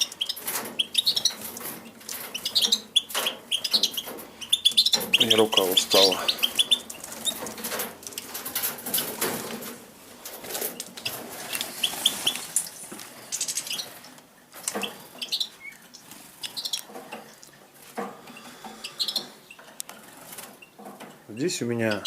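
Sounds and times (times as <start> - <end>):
finches chirping: 0.0 - 7.6, 10.8 - 17.4, 18.3 - 22.0
wing flutters: 4.8 - 14.1.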